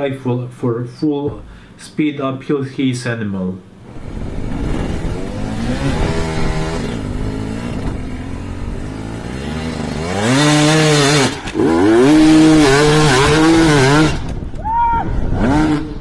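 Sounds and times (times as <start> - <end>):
dirt bike engine revving: 3.8 - 14.5, 15.2 - 16.0.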